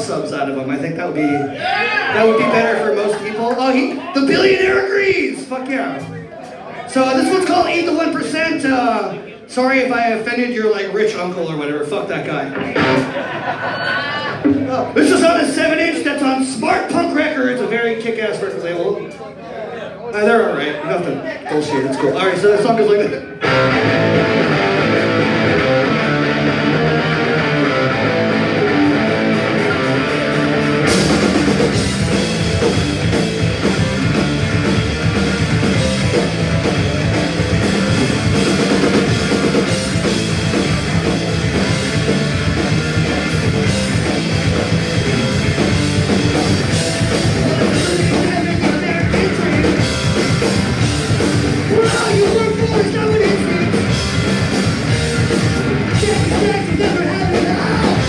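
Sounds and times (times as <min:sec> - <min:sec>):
electric guitar: 0:12.5 - 0:13.2, 0:23.3 - 0:58.0
punk rock band playing live: 0:12.5 - 0:13.6, 0:23.4 - 0:58.0.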